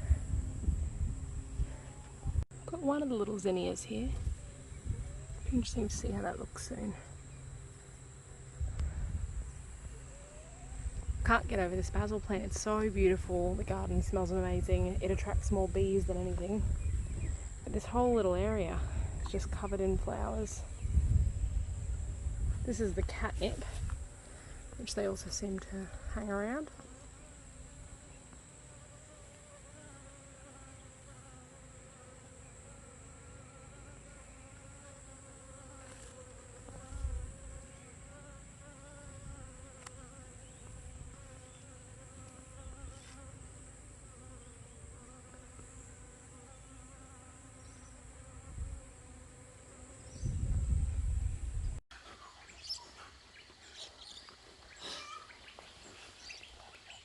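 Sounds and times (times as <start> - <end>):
wind thumps on microphone: 0.0 - 2.5, 4.1 - 6.2, 8.6 - 10.0, 10.8 - 26.2, 36.7 - 37.5, 48.4 - 48.9, 50.1 - 51.8
bees buzzing: 22.7 - 50.8.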